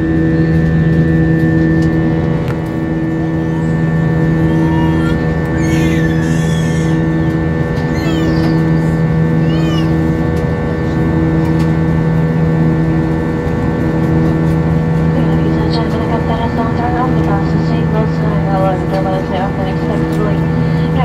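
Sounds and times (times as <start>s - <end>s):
airplane engine drone in cabin: 0.0s - 21.0s
humming tones: 0.0s - 21.0s.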